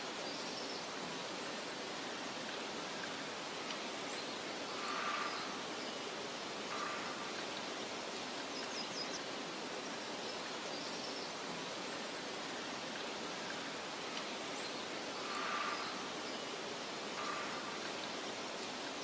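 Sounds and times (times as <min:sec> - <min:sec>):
soft wind rustling: 0:00.0 - 0:19.0.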